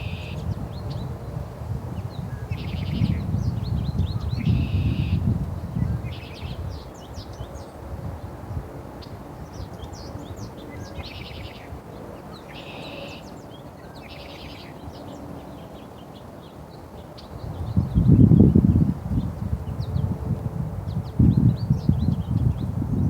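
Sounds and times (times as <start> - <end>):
small songbirds chirping: 0.0 - 20.2, 20.9 - 23.0.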